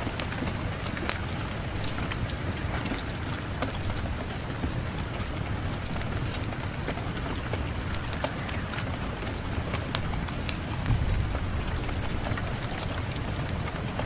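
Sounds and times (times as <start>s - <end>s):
fireplace fire crackling: 0.0s - 14.0s
low rumble of wind: 0.0s - 14.0s.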